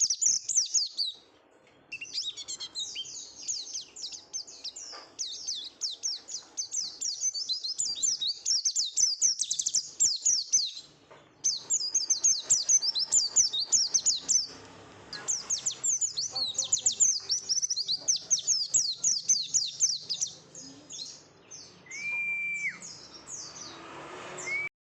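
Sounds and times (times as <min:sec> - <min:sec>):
bird singing high chirps: 0:00.0 - 0:01.2, 0:01.8 - 0:24.7
held whistle-like tone: 0:21.8 - 0:23.0, 0:24.4 - 0:24.7.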